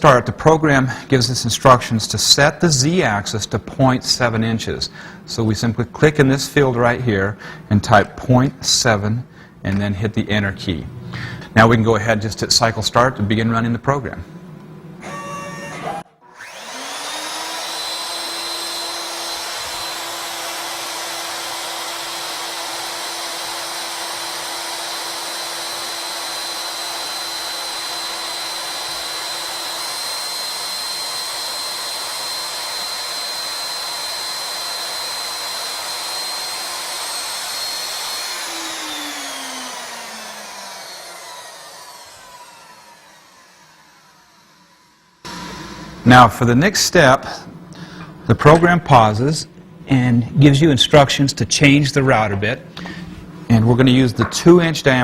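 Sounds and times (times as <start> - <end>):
router spindle motor whine: 15.0 - 46.3.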